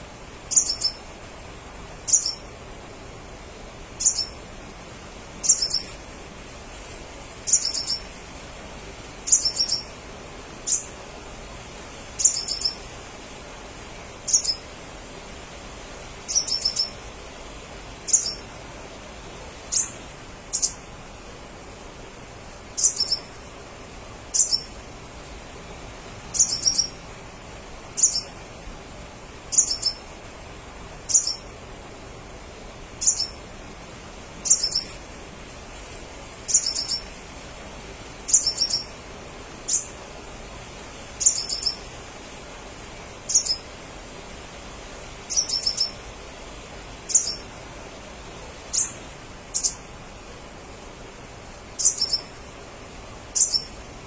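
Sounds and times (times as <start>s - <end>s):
faint steady hiss: 0.0s - 54.0s.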